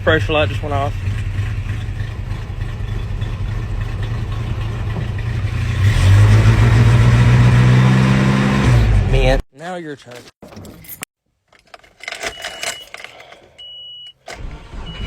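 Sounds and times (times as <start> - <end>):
truck engine running: 0.0 - 6.2.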